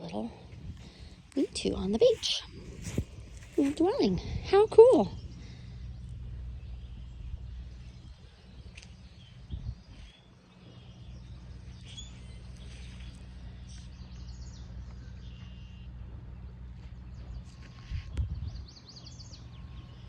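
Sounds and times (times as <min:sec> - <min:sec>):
low beach rumble: 0:00.0 - 0:20.0
bird chirps: 0:05.1 - 0:16.0.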